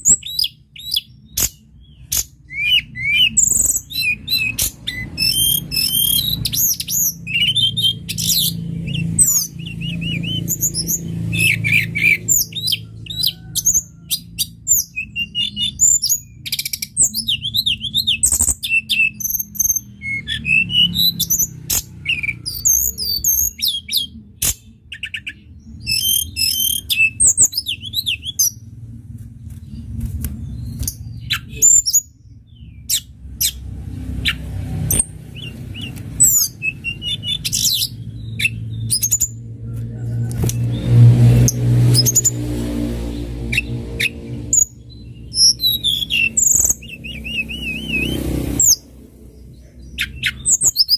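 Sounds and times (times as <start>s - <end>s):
songbird singing: 0.0s - 50.9s
low hum: 27.1s - 31.5s.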